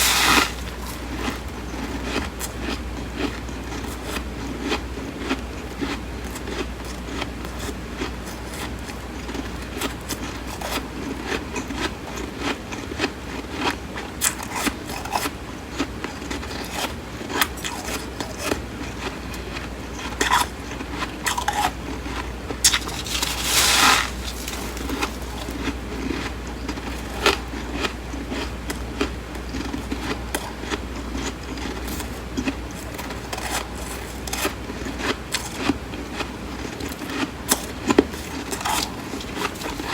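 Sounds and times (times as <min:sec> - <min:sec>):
crunching and chewing frost: 0:00.0 - 0:39.9.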